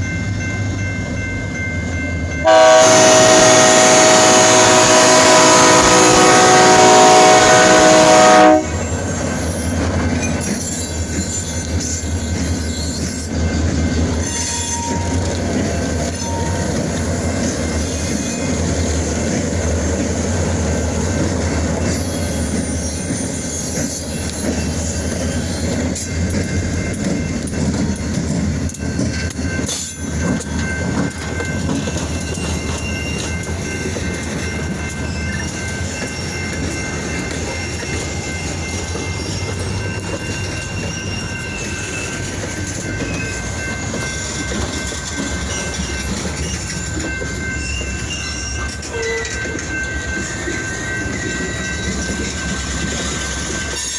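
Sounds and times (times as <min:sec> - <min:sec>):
freight train rumbling past: 0:00.0 - 0:53.9
train horn: 0:02.4 - 0:09.0, 0:48.9 - 0:49.4
train wheel squeal: 0:06.8 - 0:53.9.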